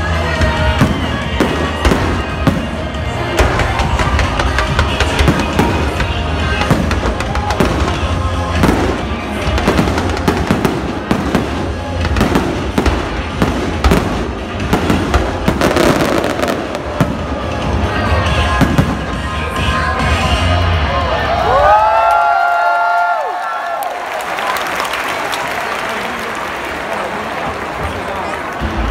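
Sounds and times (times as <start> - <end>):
fireworks bangs and crackles: 0.0 - 20.4
loud music with heavy bass: 0.0 - 21.2.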